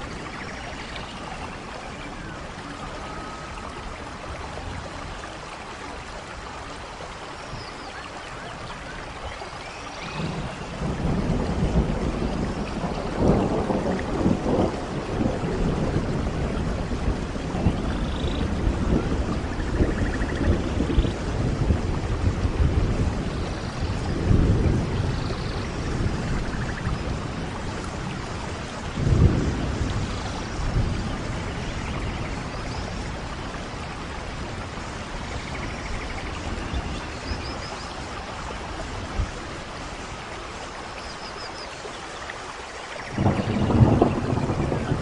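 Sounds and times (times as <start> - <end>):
steady rain: 0.0 - 45.0
low thunder rumble: 10.0 - 40.3, 43.1 - 45.0.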